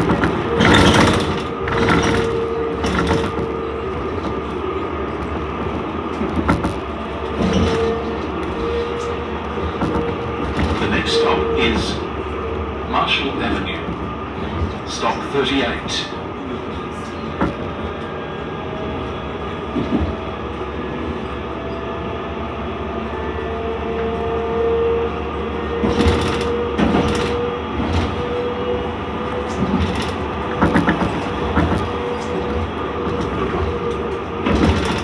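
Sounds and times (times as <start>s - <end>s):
tram rumble: 0.0s - 35.0s
wheels knocking over track joints: 29.4s - 35.0s.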